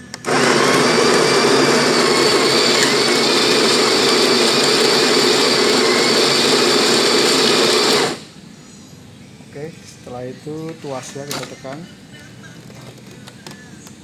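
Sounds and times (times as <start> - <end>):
coffee grinder grinding beans: 0.1 - 8.3.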